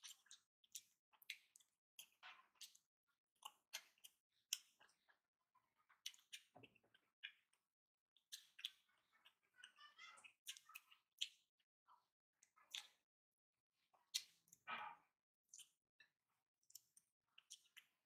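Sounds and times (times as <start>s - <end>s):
fingers squishing rice: 0.0s - 5.1s, 8.2s - 11.6s, 14.0s - 14.7s, 16.6s - 18.0s
person chewing with wet smacks: 0.0s - 13.1s, 13.8s - 18.0s.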